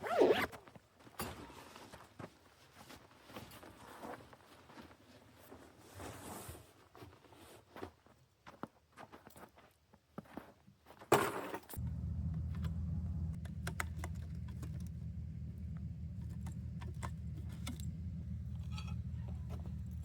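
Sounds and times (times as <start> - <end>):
vehicle engine humming: 11.8 - 20.0.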